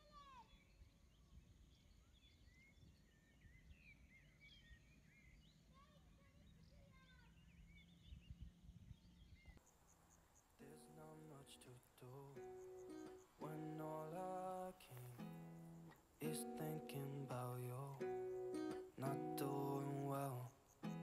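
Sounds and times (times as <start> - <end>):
birds chirping: 0.1 - 21.0
guitar music: 10.6 - 11.6, 12.2 - 21.0.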